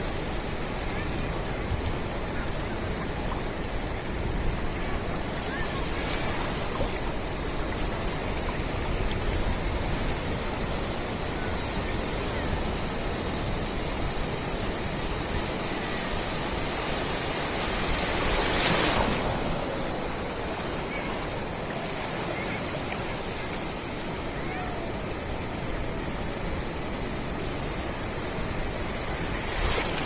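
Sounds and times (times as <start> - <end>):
sea surf washing on beach: 0.0 - 30.0
wave breaking: 4.7 - 8.3, 17.5 - 25.5, 28.8 - 30.0.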